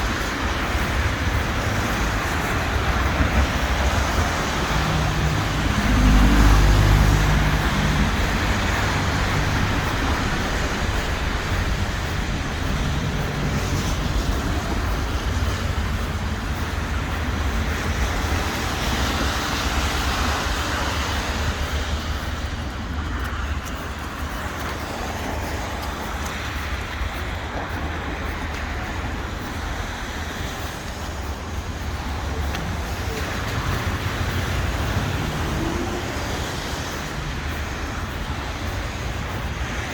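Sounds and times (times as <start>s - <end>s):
cars passing: 0.0s - 39.9s
vehicle rumbling by close: 0.0s - 39.9s.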